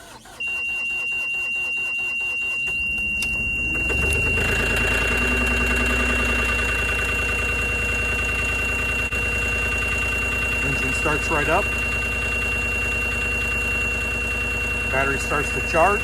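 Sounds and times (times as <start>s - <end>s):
diesel engine cranking and idling: 0.0s - 16.0s
steady high-pitched tone: 2.4s - 9.1s.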